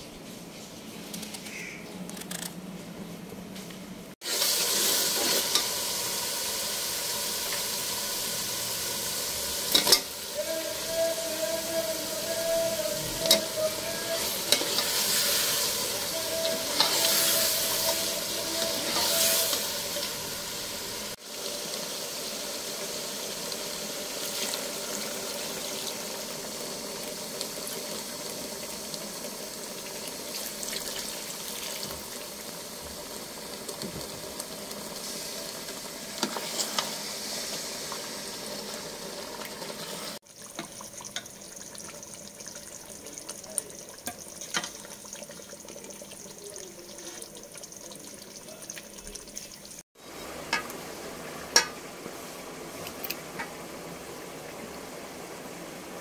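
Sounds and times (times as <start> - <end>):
vegetables sizzling in a pot: 4.1 - 56.0.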